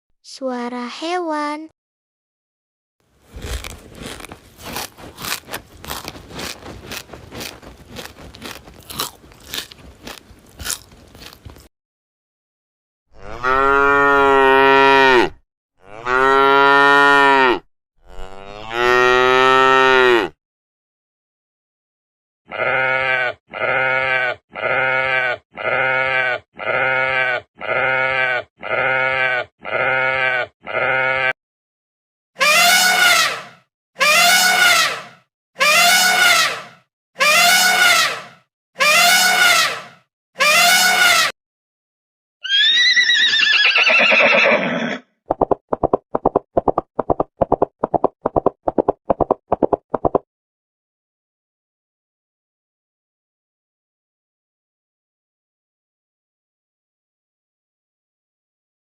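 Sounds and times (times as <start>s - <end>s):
hooves clip-clopping: 5.0s - 11.6s
sheep bleating: 22.5s - 31.4s
horse whinnying: 42.4s - 45.0s.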